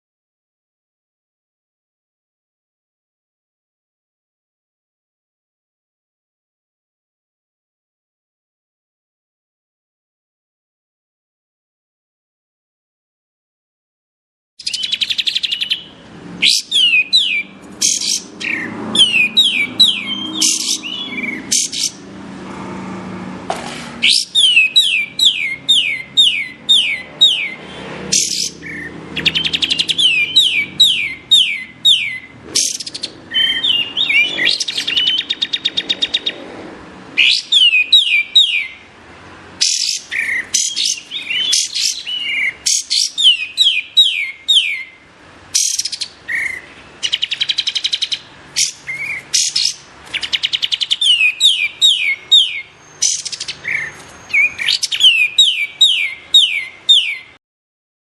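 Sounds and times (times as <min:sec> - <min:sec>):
songbird whistling rapid notes: 0:14.6 - 0:22.0, 0:24.0 - 0:36.4, 0:37.2 - 0:38.8, 0:39.6 - 0:45.0, 0:45.6 - 0:57.3.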